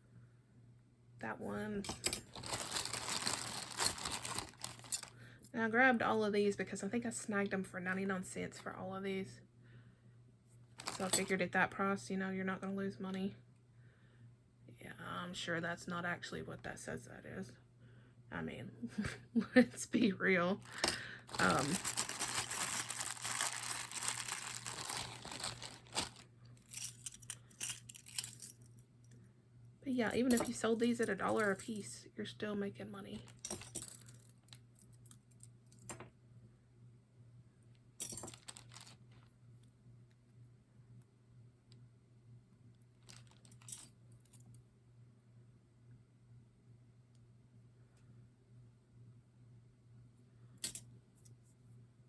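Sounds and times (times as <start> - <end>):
faint low hum: 0.0 - 52.0
metal brooches clinking: 1.8 - 5.1, 20.7 - 28.6
plastic bag crinkling: 2.2 - 5.2, 10.8 - 11.3, 20.6 - 26.3, 33.2 - 33.8, 38.2 - 39.2, 43.0 - 43.7.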